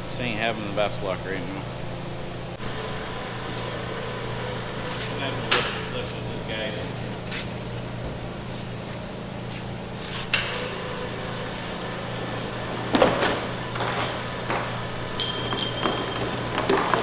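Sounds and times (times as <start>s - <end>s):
low electrical hum: 0.0s - 17.0s
metal clanks and knocks: 12.4s - 17.0s.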